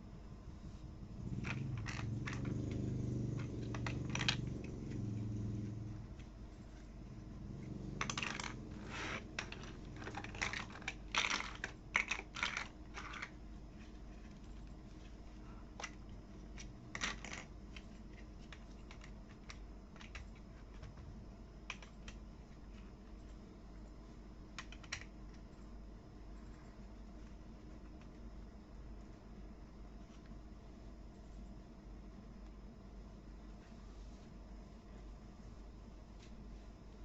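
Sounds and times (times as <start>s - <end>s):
plastic toy pieces clicking: 1.4s - 2.8s, 3.4s - 5.0s, 8.0s - 13.4s, 16.6s - 20.4s, 21.7s - 22.2s, 24.6s - 25.2s.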